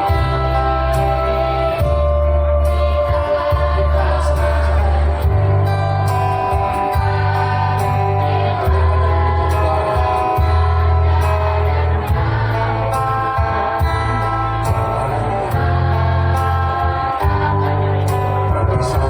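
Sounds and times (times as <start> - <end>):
choir singing: 0.0 - 19.0
music with heavy bass beat: 0.0 - 19.0.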